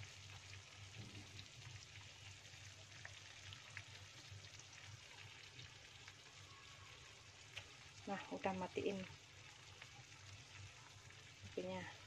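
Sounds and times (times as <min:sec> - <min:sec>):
chicken sizzling in a wok: 0:00.0 - 0:12.0
small pops and crackles: 0:02.9 - 0:06.2, 0:07.4 - 0:11.7.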